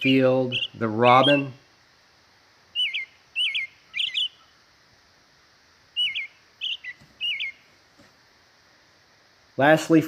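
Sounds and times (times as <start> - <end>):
robin singing: 0.0 - 8.0.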